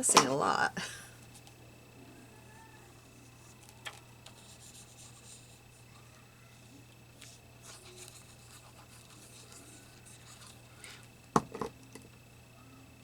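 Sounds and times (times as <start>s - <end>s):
paper rubbing and rustling: 4.3s - 5.7s, 7.2s - 10.7s.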